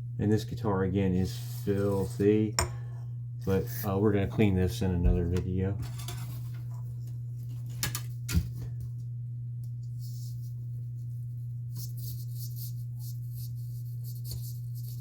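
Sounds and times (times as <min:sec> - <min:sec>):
low electrical hum: 0:00.0 - 0:15.0
brushes scrubbing: 0:01.2 - 0:02.4.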